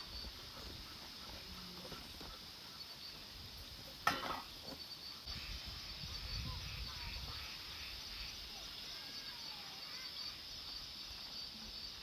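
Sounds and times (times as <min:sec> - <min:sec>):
insects chirring: 0:00.0 - 0:12.0
faint frog calls: 0:05.0 - 0:10.8.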